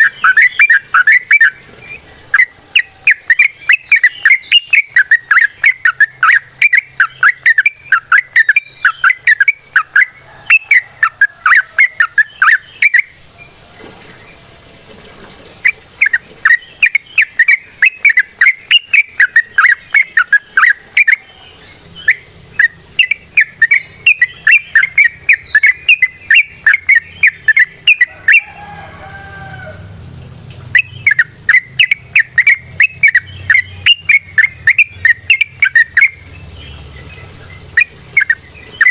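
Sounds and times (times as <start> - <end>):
bulbul rapid chattering song: 0.0 - 13.3, 15.6 - 28.7, 30.2 - 38.9.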